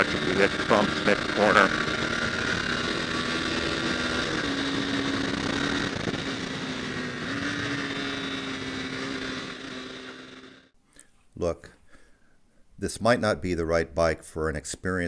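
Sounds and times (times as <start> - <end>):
road and wind noise: 0.0 - 10.6
motorcycle engine running: 0.0 - 10.8.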